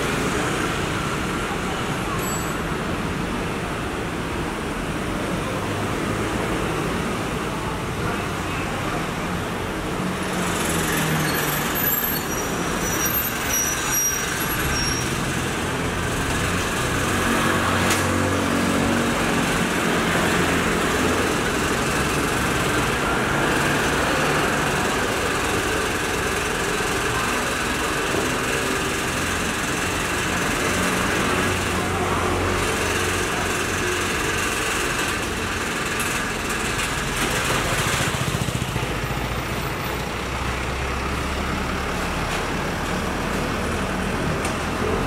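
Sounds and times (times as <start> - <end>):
street traffic noise: 0.0 - 45.0
garbage truck engine running: 8.8 - 45.0.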